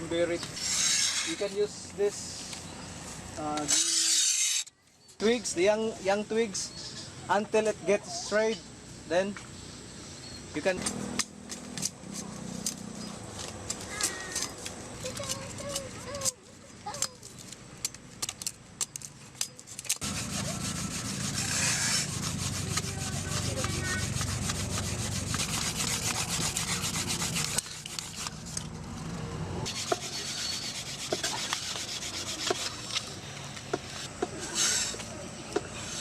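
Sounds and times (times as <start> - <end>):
wood rubbing back and forth: 0.0 - 6.3, 18.9 - 28.8, 29.6 - 36.0.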